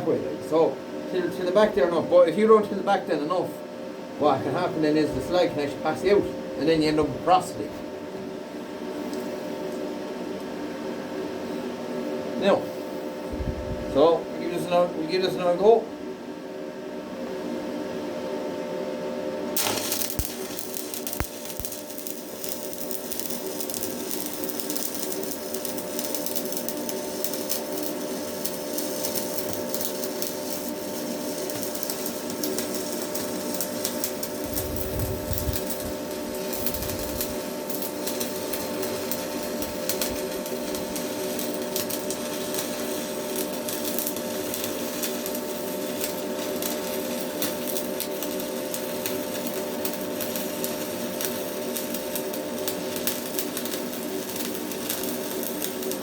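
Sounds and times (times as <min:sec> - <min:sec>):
faint hum: 0:00.0 - 0:47.4
low rumble: 0:13.3 - 0:13.9
welding arc crackling sizzle: 0:19.5 - 0:56.0.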